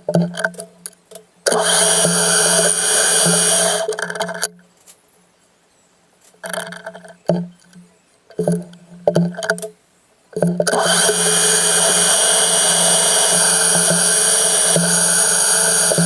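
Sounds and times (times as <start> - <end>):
power tool humming and hissing: 1.5 - 3.9, 10.7 - 16.0.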